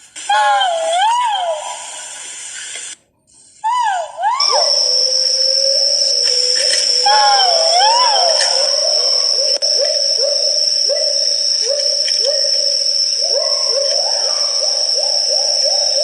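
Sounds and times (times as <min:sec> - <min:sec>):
pheasant upward-sliding hoots: 0:03.7 - 0:16.0
steady high-pitched whine: 0:04.4 - 0:16.0.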